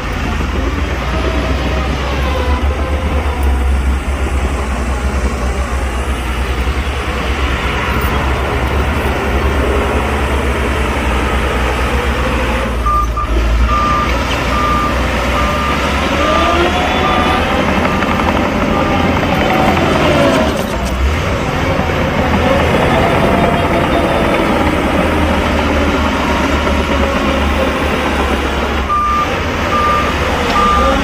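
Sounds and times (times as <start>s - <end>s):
heavy diesel machinery running: 0.0s - 31.0s
reversing alarm beeping: 12.8s - 20.0s, 28.8s - 31.0s.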